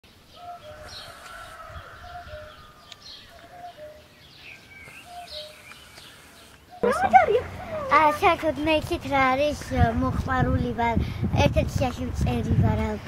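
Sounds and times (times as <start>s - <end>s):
high bird chirps: 0.4s - 8.0s.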